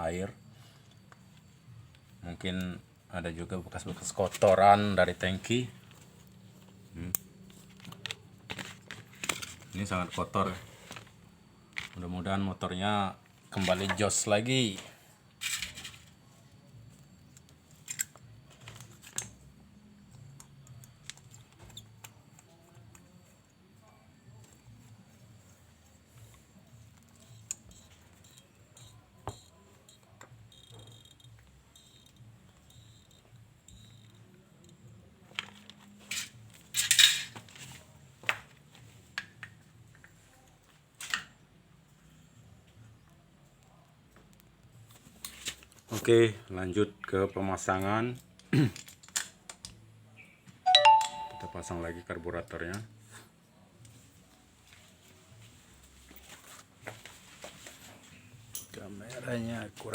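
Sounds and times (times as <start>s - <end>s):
small metal parts clicking: 17.3s - 19.4s, 27.2s - 34.8s, 35.4s - 37.4s
metal parts clinking: 36.1s - 37.4s.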